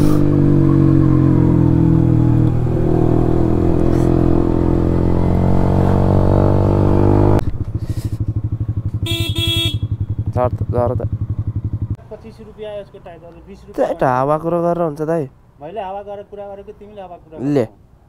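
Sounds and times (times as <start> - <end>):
motorcycle engine running: 0.0 - 12.1.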